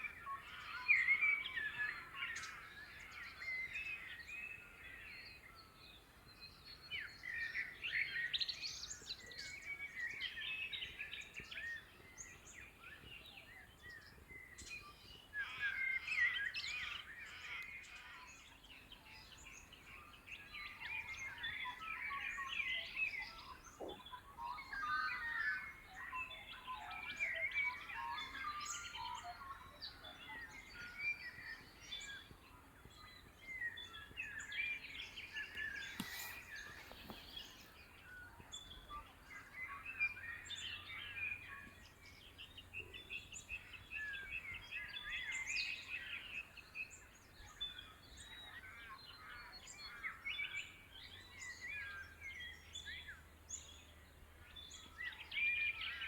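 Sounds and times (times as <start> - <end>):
birds chirping and trilling: 23.1 - 46.6
brief click: 35.4 - 37.7.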